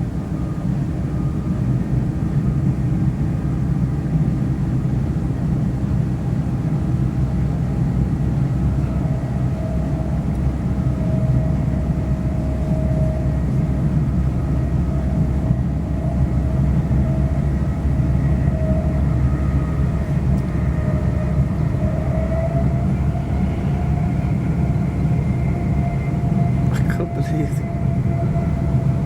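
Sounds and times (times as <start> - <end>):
train wheels rumbling on track: 0.0 - 29.0.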